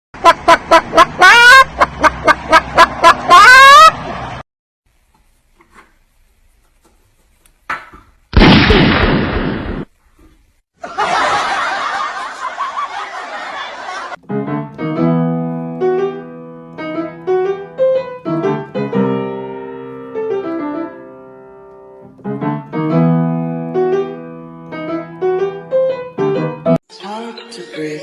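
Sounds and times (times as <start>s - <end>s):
piano melody with chords: 14.2s - 26.8s.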